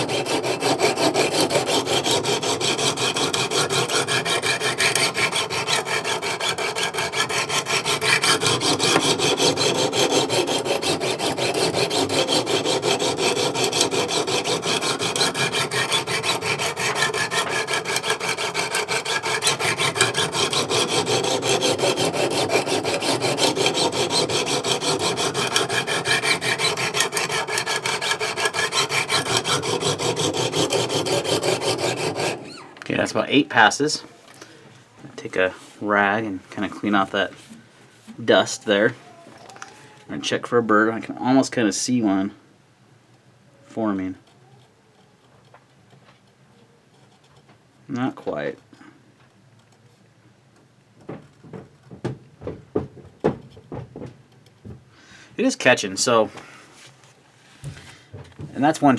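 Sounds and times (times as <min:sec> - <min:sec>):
stone rasping on knife blade: 0:00.0 - 0:32.6.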